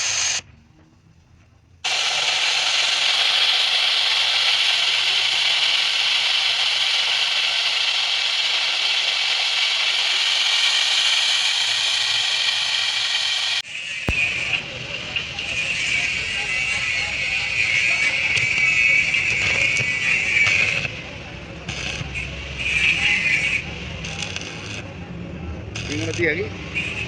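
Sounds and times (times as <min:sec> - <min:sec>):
loud hissing noise: 0:00.0 - 0:00.5, 0:01.8 - 0:14.8.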